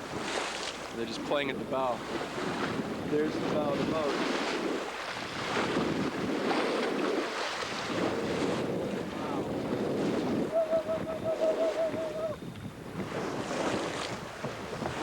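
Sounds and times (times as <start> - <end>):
water rushing along a hull: 0.0 - 15.0
wind buffeting the microphone: 0.0 - 15.0
warbling whistle-like tone: 10.5 - 12.4.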